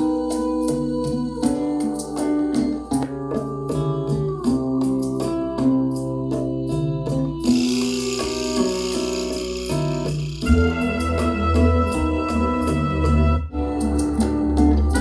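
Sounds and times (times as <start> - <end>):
bright hiss: 7.5 - 10.5.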